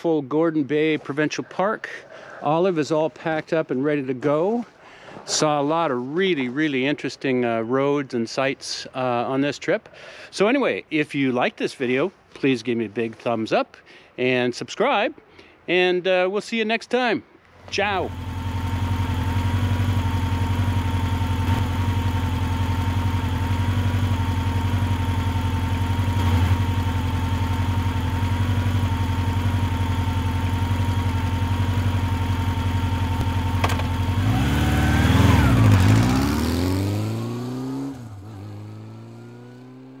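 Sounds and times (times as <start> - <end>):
motorcycle engine idling and revving: 17.6 - 40.0.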